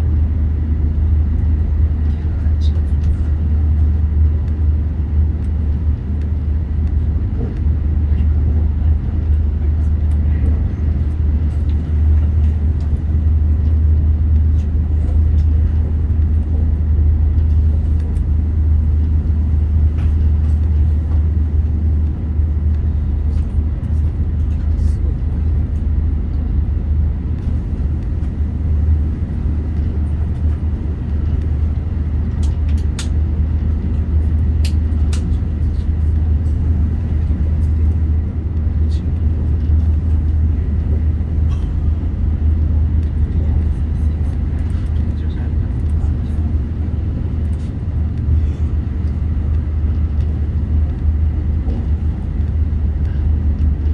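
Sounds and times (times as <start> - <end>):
train wheels rumbling on track: 0.0 - 53.9.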